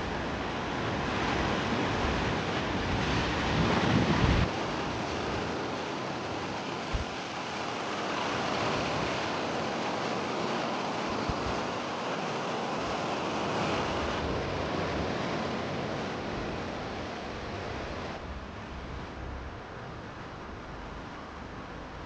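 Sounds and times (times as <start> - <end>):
wind on microphone: 0.0 - 5.8, 6.9 - 7.2, 11.0 - 11.7
sea surf washing onto beach: 0.0 - 18.7
low bumps: 16.3 - 22.0.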